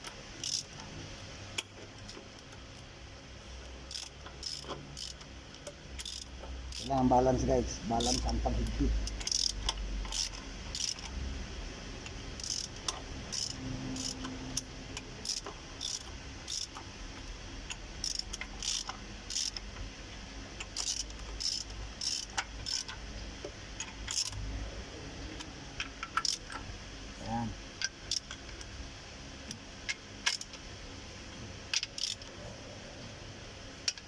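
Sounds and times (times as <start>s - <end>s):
wrench clicking on metal: 0.0s - 0.9s, 3.9s - 7.1s, 8.0s - 11.2s, 12.0s - 19.7s, 20.6s - 23.0s, 23.8s - 24.4s, 25.4s - 26.7s, 27.8s - 28.7s, 29.5s - 30.6s, 31.7s - 32.3s.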